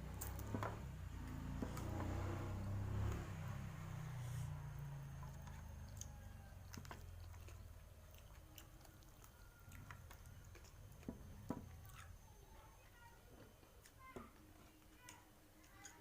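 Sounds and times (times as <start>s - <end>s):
person chewing food: 4.3s - 12.7s.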